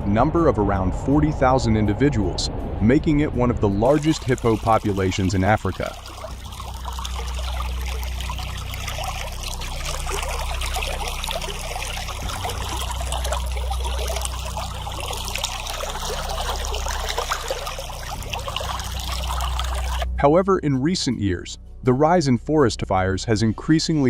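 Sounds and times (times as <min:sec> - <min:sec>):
low hum: 0:00.0 - 0:20.2
running water rushing: 0:03.8 - 0:20.1.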